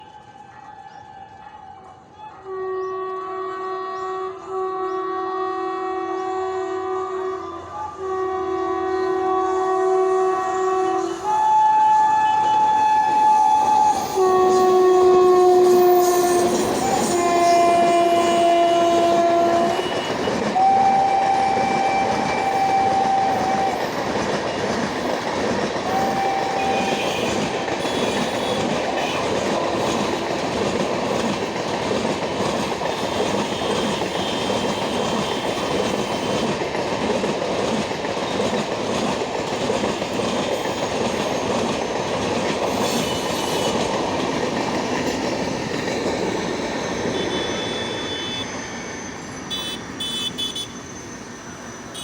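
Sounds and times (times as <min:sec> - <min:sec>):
train horn blasts: 0:02.5 - 0:24.0, 0:25.8 - 0:30.2, 0:32.9 - 0:36.6, 0:42.7 - 0:44.0, 0:47.1 - 0:48.5, 0:49.5 - 0:50.8
train wheels clickety-clack: 0:11.8 - 0:48.5.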